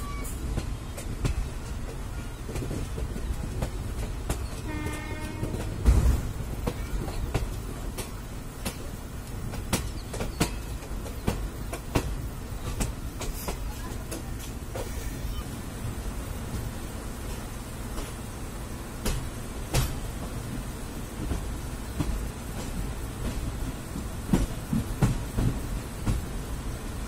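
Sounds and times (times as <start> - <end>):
train rumbling on rails: 0.0 - 27.0
train horn: 4.6 - 5.8.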